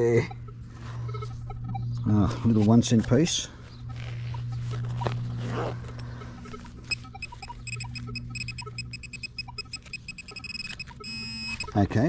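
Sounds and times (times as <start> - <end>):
steady low hum: 0.0 - 12.0
metal detector short high beeps: 6.9 - 11.8.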